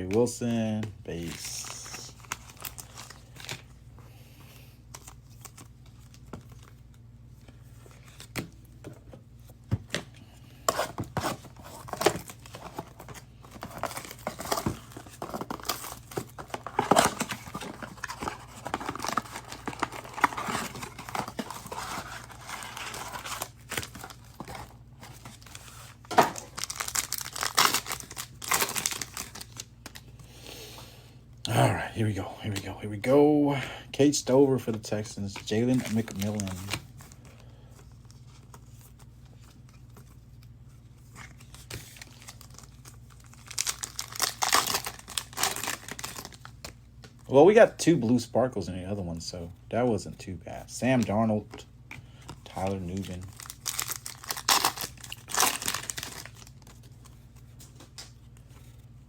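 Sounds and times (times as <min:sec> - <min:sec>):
plastic wrappers tearing and crinkling: 0:01.2 - 0:03.7, 0:10.7 - 0:30.1, 0:35.3 - 0:37.2, 0:41.2 - 0:46.7, 0:52.6 - 0:57.1.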